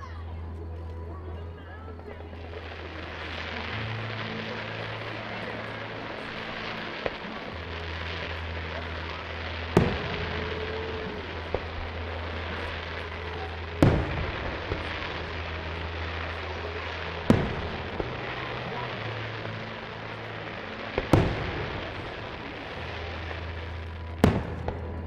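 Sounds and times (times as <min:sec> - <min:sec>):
steady background hiss: 0:00.0 - 0:25.0
firework shells bursting: 0:02.4 - 0:24.8.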